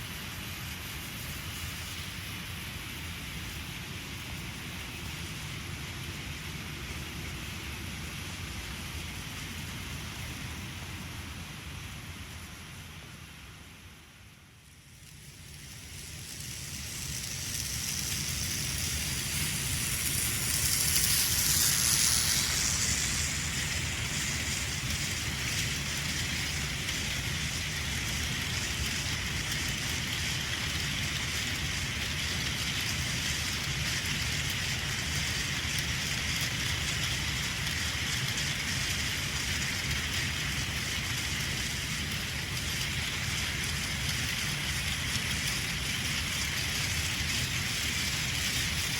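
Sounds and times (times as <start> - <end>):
toy train motor whirring on track: 14.6 - 48.9.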